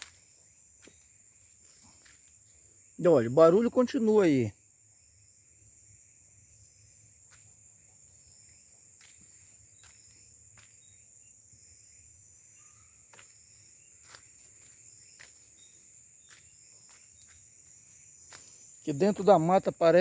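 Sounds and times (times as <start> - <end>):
footsteps through brush: 0.0 - 2.7, 7.1 - 11.0, 12.9 - 19.6
insects droning: 0.0 - 20.0.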